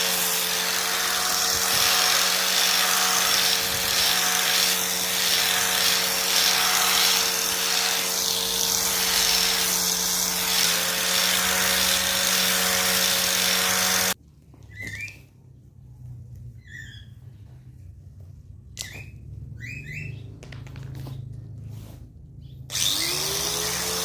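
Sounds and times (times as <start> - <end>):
small motor whirring: 0.0 - 14.2, 22.7 - 24.0.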